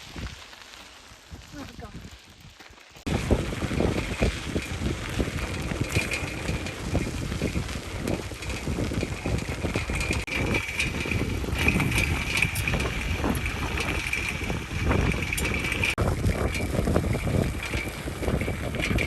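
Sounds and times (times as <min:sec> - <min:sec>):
wind buffeting microphone: 0:00.0 - 0:00.4, 0:01.2 - 0:19.0.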